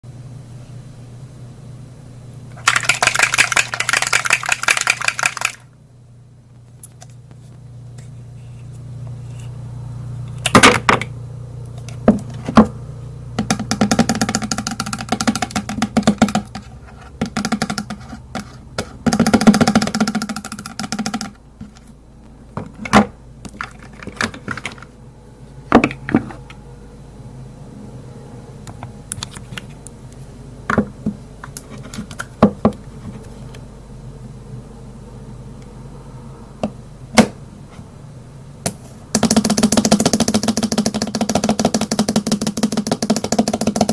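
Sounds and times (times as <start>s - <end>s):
sharp clicks of cases: 2.6s - 5.6s, 22.6s - 24.9s
fast rattling ticks: 2.6s - 5.7s
low hum: 5.6s - 32.0s, 32.8s - 38.7s.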